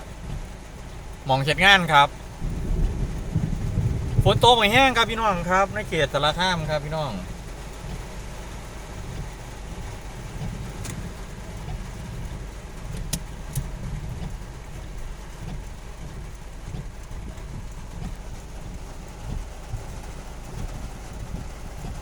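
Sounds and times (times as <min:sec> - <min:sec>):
car engine and road noise: 0:00.0 - 0:22.0
sharp ticks: 0:09.0 - 0:18.2.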